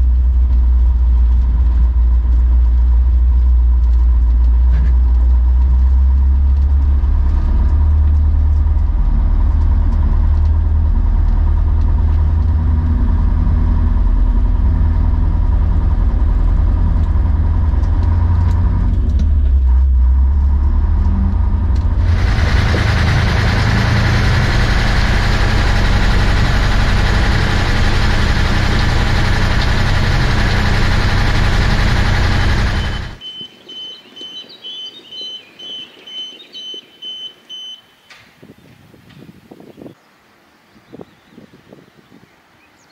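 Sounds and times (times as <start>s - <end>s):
diesel truck engine running: 0.0s - 33.9s
loud rushing noise: 22.0s - 33.2s.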